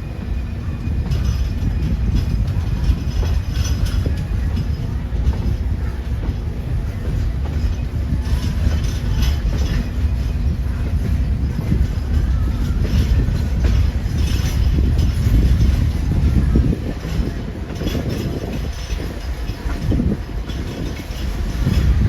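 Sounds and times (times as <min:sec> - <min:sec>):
train rumbling on track: 0:00.0 - 0:22.0
wheel squeaks: 0:00.0 - 0:22.0
wheels clattering on rails: 0:00.0 - 0:22.0.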